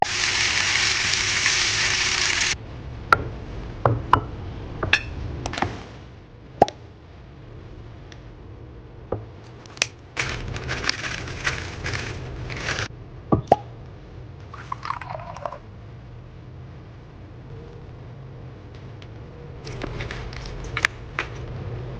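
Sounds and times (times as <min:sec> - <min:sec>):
frying sizzle: 0:00.0 - 0:02.6, 0:10.2 - 0:12.9.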